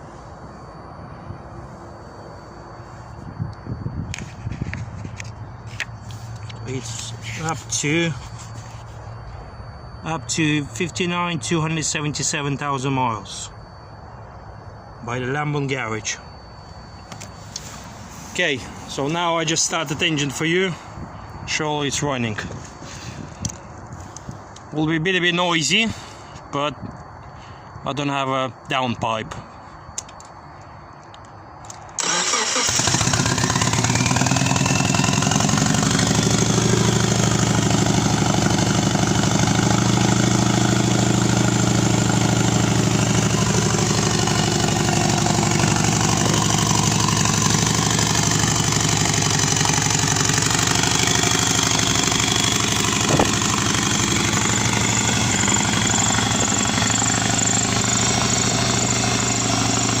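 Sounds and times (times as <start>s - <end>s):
loud engine starting and idling: 32.0s - 60.0s.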